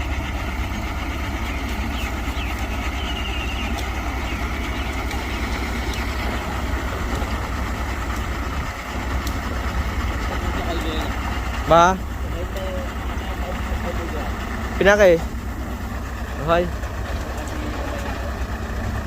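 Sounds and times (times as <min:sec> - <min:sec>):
bulldozer diesel engine rumbling: 0:00.0 - 0:19.0.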